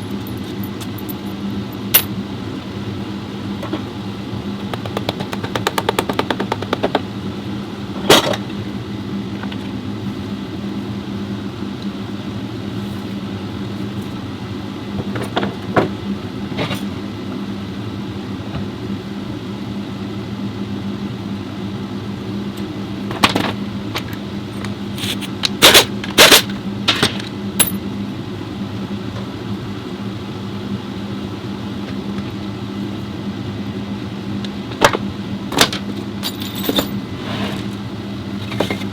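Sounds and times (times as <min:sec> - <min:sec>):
steady machine hum: 0:00.0 - 0:38.9
quick run of ticks: 0:04.6 - 0:07.0
metal tools knocking and clinking: 0:35.6 - 0:37.0.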